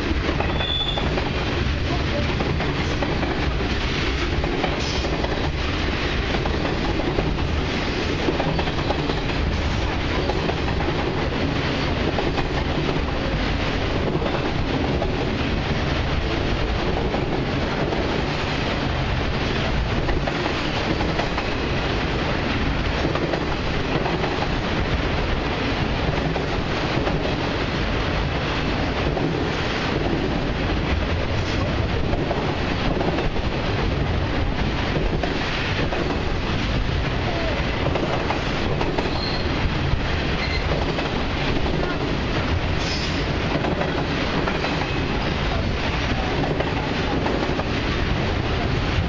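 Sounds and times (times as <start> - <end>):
clacks over rail joints: 0.0 - 15.4, 37.8 - 47.8
train wheels rumbling on rail: 0.0 - 49.0.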